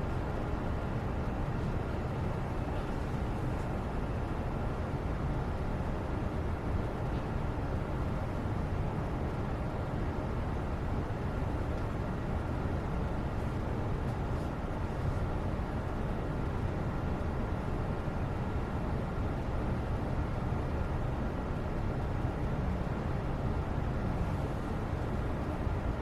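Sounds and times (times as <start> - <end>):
faint light ticks: 11.7 - 12.0.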